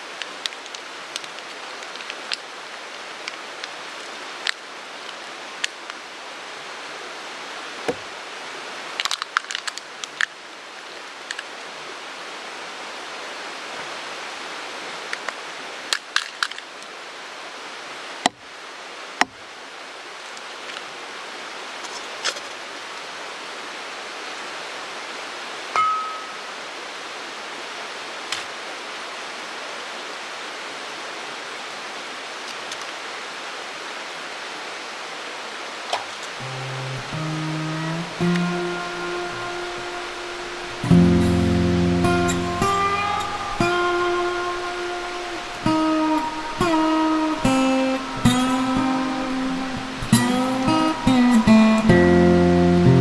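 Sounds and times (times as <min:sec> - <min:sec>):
mountain stream rushing: 0:00.0 - 0:53.0
wood campfire crackling: 0:35.9 - 0:53.0.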